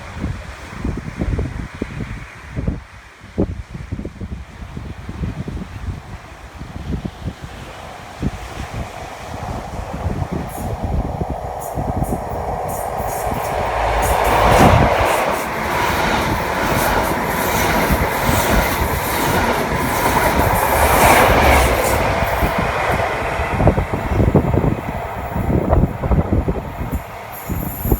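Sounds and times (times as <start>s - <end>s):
train wheels rumbling on rails: 4.7s - 27.9s
sharp rail clicks: 11.5s - 23.3s.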